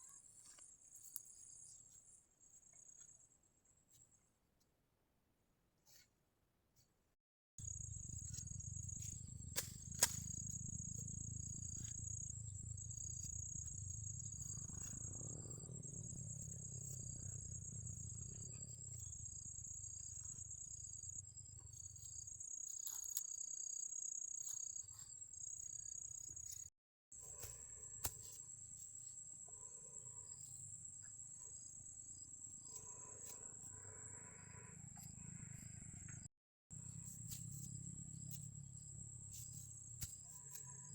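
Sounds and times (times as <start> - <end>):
low rumble: 7.6 - 21.4
crickets trilling: 7.6 - 26.7.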